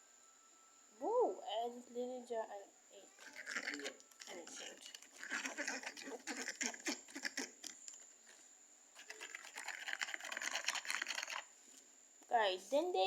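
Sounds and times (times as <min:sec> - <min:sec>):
slime stirring wet clicks: 0:03.3 - 0:08.1, 0:09.0 - 0:11.5.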